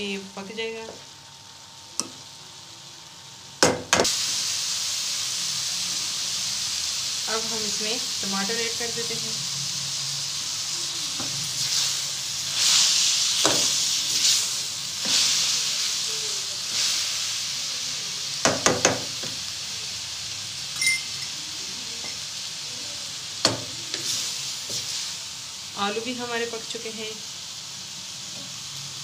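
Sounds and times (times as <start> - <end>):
vegetables sizzling in a pan: 0.0 - 29.0
spoon clinking against a pan: 20.8 - 21.4
spoon stirring in a pan: 23.4 - 25.1.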